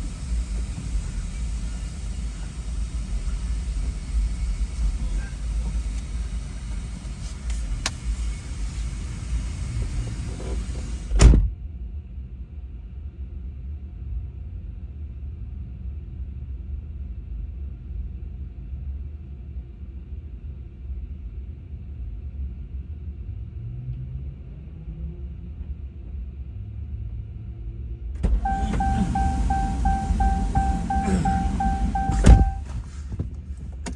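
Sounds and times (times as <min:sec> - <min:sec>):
sharp thump: 0:28.2 - 0:32.7
muffled car rumble from inside: 0:28.2 - 0:33.2.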